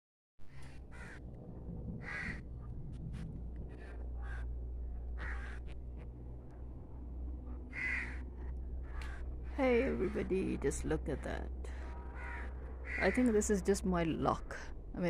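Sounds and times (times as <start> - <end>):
low rumble: 0.4 - 15.0
crows cawing: 0.5 - 1.3, 2.0 - 2.5, 3.7 - 5.8, 7.5 - 9.6, 11.7 - 13.4.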